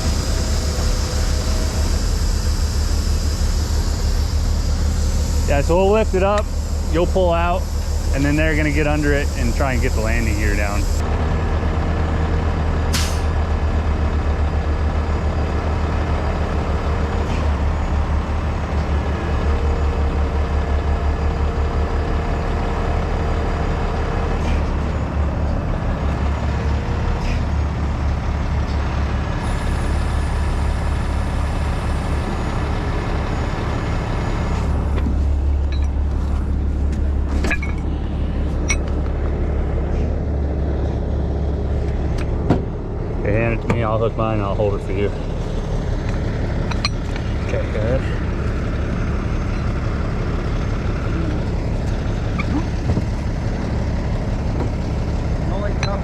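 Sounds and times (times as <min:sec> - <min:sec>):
diesel engine humming: 0:00.0 - 0:56.0.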